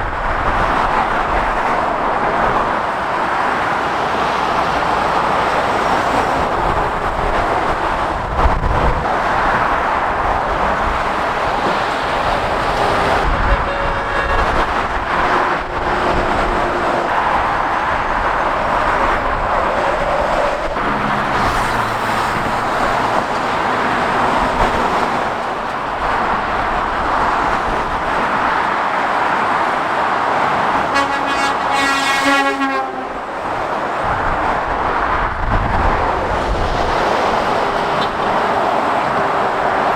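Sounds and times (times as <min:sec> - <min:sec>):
heavy motorway traffic: 0:00.0 - 0:39.9
faint horn-like tone: 0:13.2 - 0:17.0, 0:30.9 - 0:33.2
vehicle horn: 0:13.2 - 0:17.2, 0:30.8 - 0:33.4.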